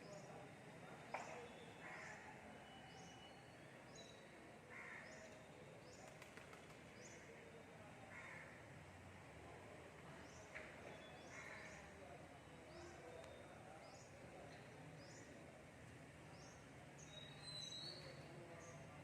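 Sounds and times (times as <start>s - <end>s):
faint crows cawing: 1.8s - 2.4s, 4.7s - 5.4s, 8.1s - 8.7s, 11.2s - 11.9s.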